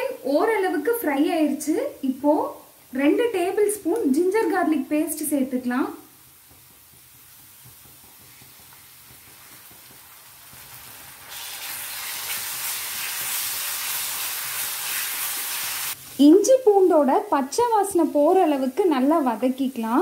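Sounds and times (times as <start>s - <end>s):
onions sizzling in oil: 0.0s - 20.0s
spatula stirring: 6.3s - 16.2s.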